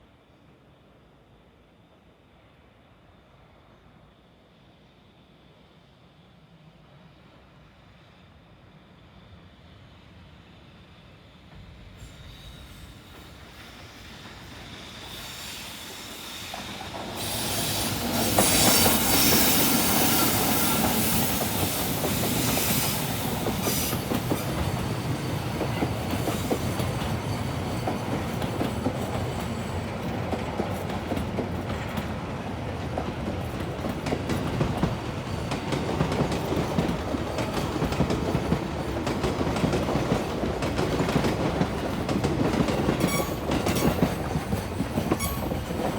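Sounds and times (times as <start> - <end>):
train passing: 0.1 - 45.9.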